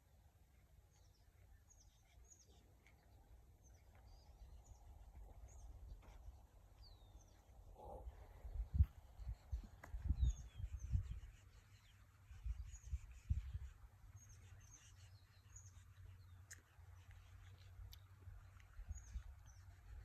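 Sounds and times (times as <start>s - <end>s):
small birds chirping: 0.4s - 20.0s.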